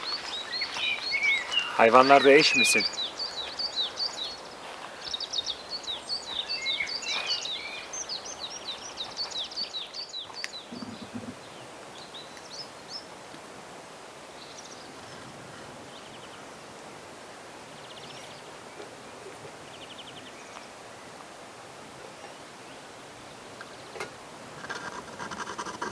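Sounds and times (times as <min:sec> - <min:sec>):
faint steady hiss: 0:00.0 - 0:09.2
songbirds singing: 0:00.0 - 0:13.2, 0:14.3 - 0:21.2.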